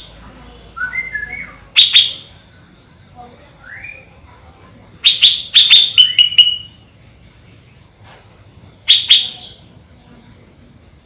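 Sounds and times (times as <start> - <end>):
bulbul chirping: 0.8 - 2.3, 5.0 - 6.8, 8.9 - 9.7.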